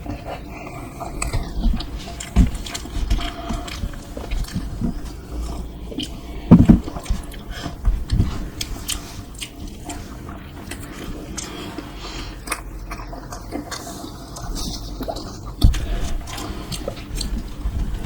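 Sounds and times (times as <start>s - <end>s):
wet chewing: 0.0s - 18.0s
low thumps: 1.4s - 8.8s.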